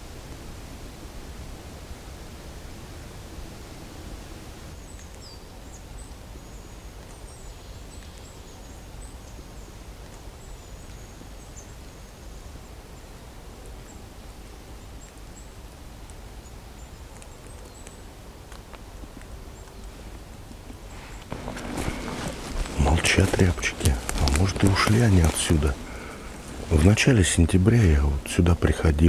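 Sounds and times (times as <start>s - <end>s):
steady background hiss: 0.0s - 29.0s
small birds chirping: 4.7s - 29.0s
snaps or rustles: 17.1s - 26.7s.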